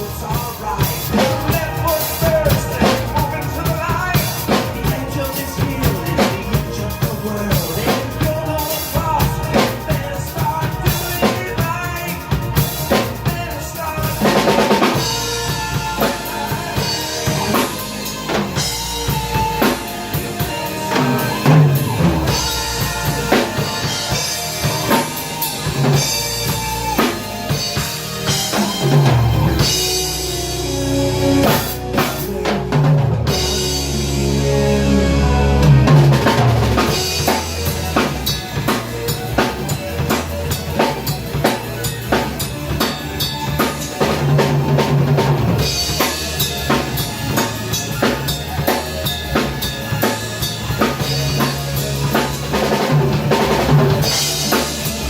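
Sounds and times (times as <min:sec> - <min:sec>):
drum kit: 0:00.0 - 0:55.0
progressive rock band: 0:00.0 - 0:55.0
held low bass note: 0:29.4 - 0:37.5.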